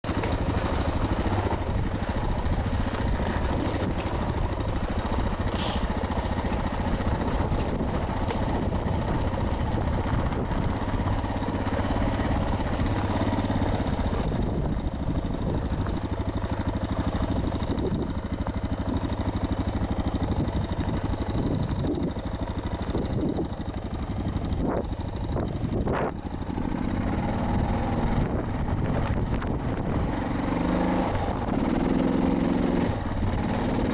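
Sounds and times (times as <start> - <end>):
motorcycle engine under load: 0.0 - 33.9
wind noise on microphone: 1.0 - 13.0, 13.8 - 16.1, 17.4 - 18.2, 20.3 - 22.2, 24.4 - 26.5, 27.5 - 30.5.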